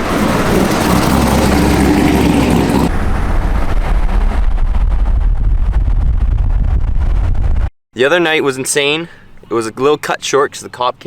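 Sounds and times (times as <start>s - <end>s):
car engine running: 0.0s - 4.3s.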